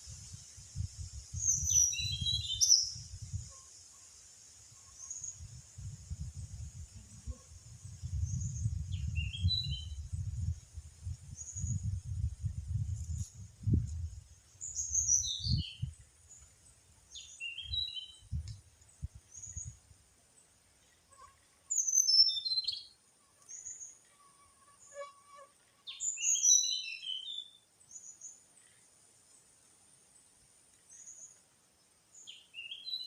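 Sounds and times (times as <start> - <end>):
songbird calling: 1.4 - 3.6, 14.6 - 16.4, 17.1 - 18.4, 21.7 - 23.9, 25.8 - 28.9, 32.1 - 33.0.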